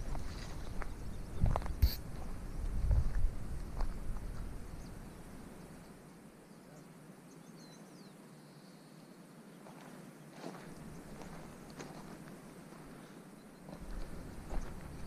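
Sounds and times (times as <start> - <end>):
low rumble on microphone: 0.0 - 5.2
faint steady hiss: 0.0 - 15.0
small bird chirping: 0.3 - 2.7.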